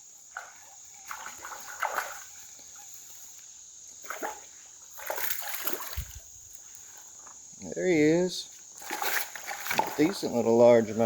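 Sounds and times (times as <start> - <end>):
high cricket drone: 0.0 - 11.0
fish splashing at water surface: 4.0 - 6.3, 8.8 - 10.4.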